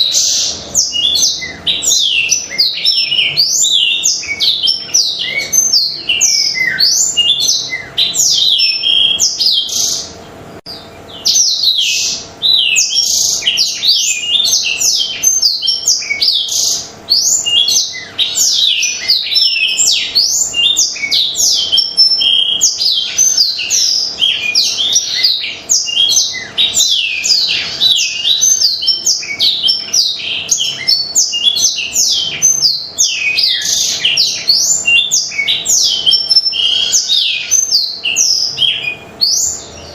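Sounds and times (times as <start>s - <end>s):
canary singing twittering song: 0.0s - 39.9s.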